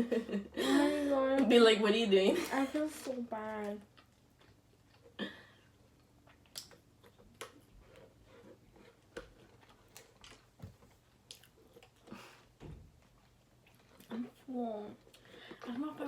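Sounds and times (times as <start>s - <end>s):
person chewing: 3.9s - 15.7s.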